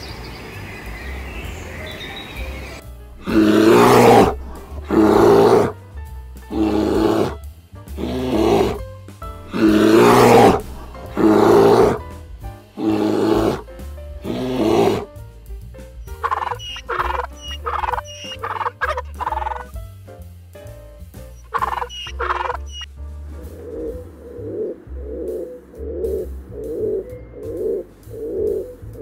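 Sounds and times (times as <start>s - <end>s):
soft background music: 0.1s - 29.0s
large animal calling: 3.2s - 5.8s, 6.5s - 8.8s, 9.4s - 12.0s, 12.8s - 13.6s, 14.2s - 15.1s, 16.1s - 19.7s, 21.4s - 22.9s, 23.6s - 28.8s.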